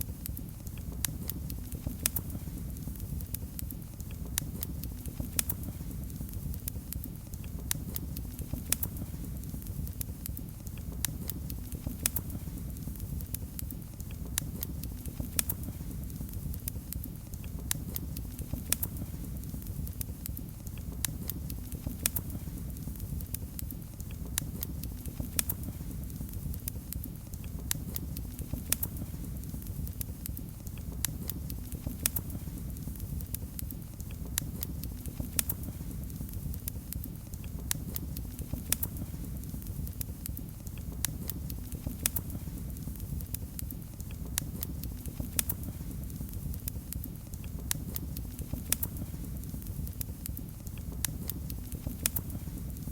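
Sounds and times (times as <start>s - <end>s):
fire crackling and popping: 0.0s - 52.9s
low rumble of flames: 0.0s - 52.9s.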